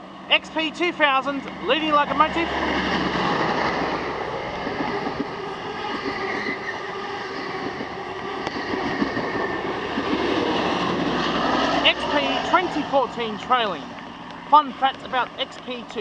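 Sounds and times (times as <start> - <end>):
train wheels clattering on rails: 7.4 - 11.8.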